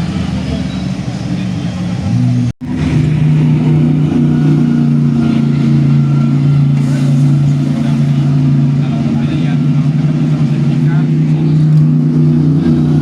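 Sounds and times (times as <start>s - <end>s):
race car engine drone: 0.0s - 13.0s.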